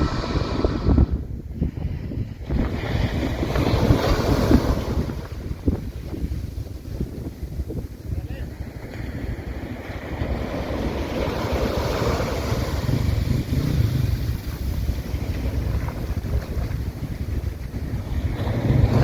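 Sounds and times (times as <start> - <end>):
breaking surf: 0.0 - 1.2, 2.4 - 5.8, 8.5 - 19.0
wind buffeting microphone: 0.0 - 19.0.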